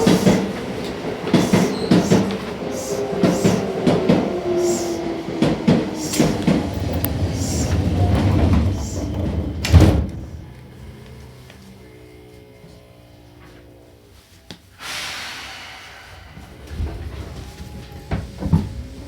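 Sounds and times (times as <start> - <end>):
sliding doors shutting with thud: 0.0 - 11.0, 16.6 - 19.0
knocks and clatter: 5.4 - 11.1.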